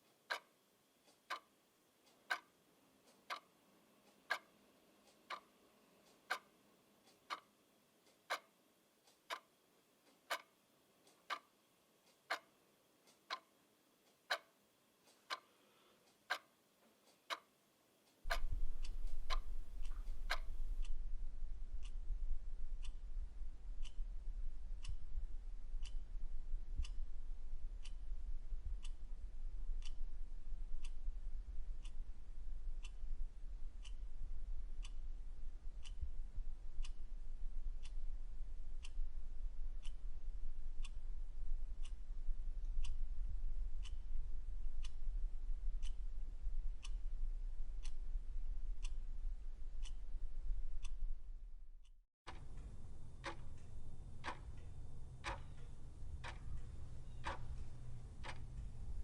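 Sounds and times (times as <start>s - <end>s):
clock ticking: 0.0s - 15.5s, 16.1s - 51.2s, 52.3s - 59.0s
steady low hum: 18.2s - 59.0s.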